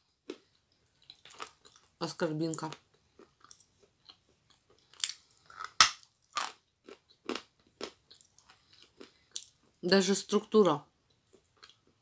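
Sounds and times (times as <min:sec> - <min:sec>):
dry crunches of chewing: 0:00.2 - 0:01.9, 0:02.6 - 0:09.6.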